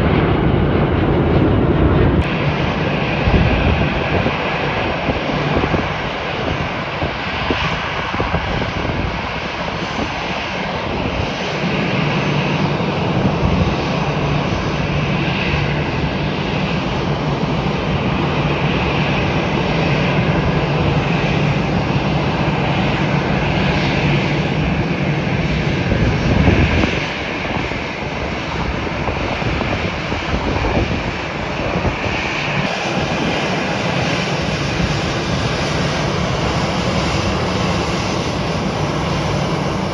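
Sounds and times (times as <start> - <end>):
jet engines running: 0.0 - 39.9
low hum: 32.7 - 39.9.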